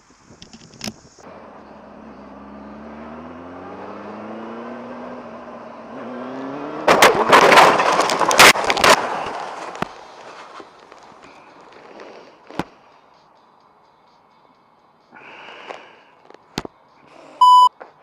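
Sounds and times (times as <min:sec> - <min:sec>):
motorcycle engine accelerating: 0:01.2 - 0:08.9
crash impacts and scraping: 0:06.8 - 0:12.7.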